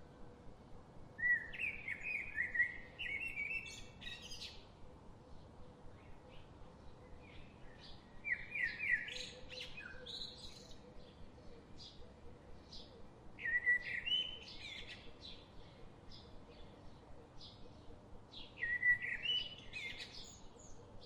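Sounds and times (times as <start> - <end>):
songbirds chirping: 0.0 - 21.0
bird song phrases: 1.2 - 21.0.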